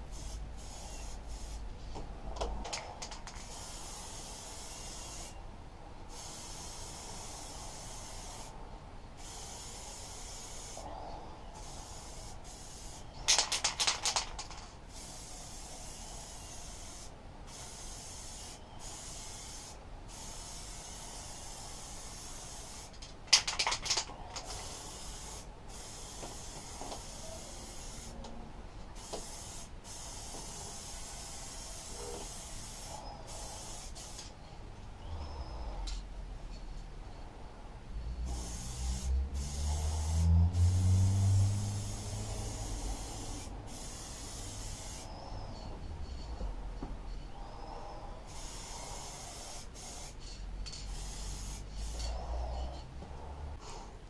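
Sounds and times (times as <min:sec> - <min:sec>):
spray paint can hissing: 0:00.0 - 0:01.7, 0:02.6 - 0:05.4, 0:06.1 - 0:08.6, 0:09.2 - 0:10.8, 0:11.6 - 0:28.2, 0:29.0 - 0:34.3, 0:38.3 - 0:45.6, 0:48.3 - 0:52.2
spray can rattling: 0:02.5 - 0:05.3, 0:11.6 - 0:28.1, 0:29.0 - 0:34.3, 0:38.3 - 0:45.0, 0:48.4 - 0:52.1.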